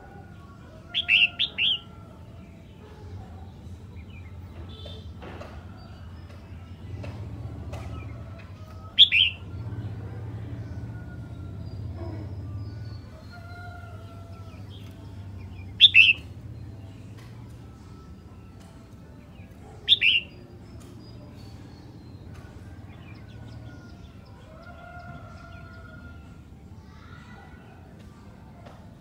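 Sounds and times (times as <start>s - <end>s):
bird double chirps: 9.0s - 9.4s, 15.8s - 16.3s, 19.9s - 20.3s.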